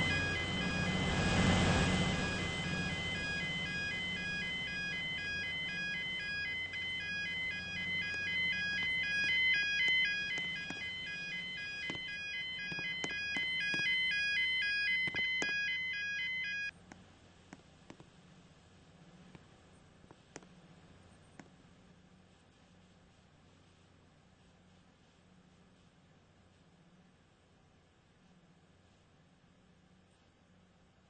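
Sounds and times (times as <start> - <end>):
level crossing two-tone alarm: 0.0 - 16.7.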